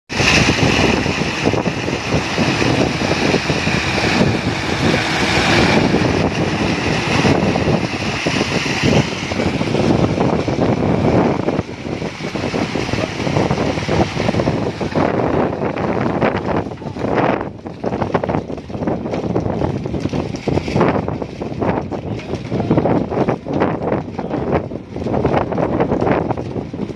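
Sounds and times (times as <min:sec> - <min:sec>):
high whine: 0:00.1 - 0:19.4
truck engine running: 0:00.1 - 0:26.9.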